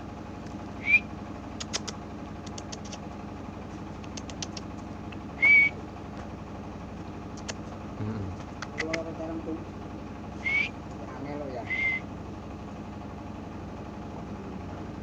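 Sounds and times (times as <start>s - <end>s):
low hum: 0.0s - 15.0s
canary whistled call: 0.8s - 1.1s, 5.4s - 5.8s, 10.4s - 10.8s, 11.6s - 12.1s
sharp clicks: 1.6s - 3.0s, 4.0s - 5.2s, 7.3s - 7.7s, 8.4s - 9.1s.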